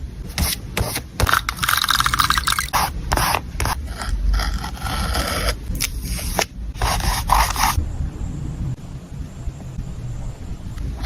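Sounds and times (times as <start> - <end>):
paper scraping and rubbing: 2.6 - 7.8.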